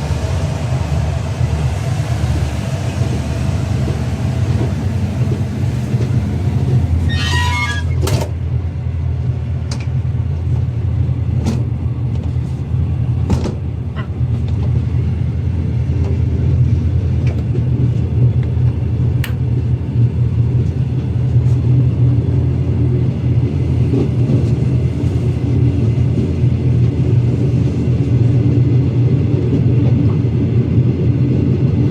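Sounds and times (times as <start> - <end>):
clicks and knocks of train: 0.0 - 31.9
train rumbling along track: 0.0 - 31.9
high-pitched squeal: 7.0 - 8.0.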